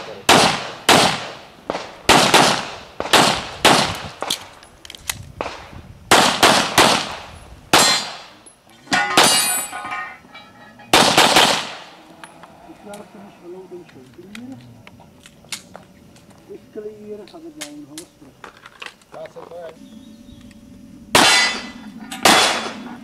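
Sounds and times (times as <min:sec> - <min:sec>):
metallic ringing: 0:07.8 - 0:11.2, 0:21.1 - 0:23.0
handgun shots echoing: 0:10.9 - 0:11.9, 0:21.2 - 0:22.8.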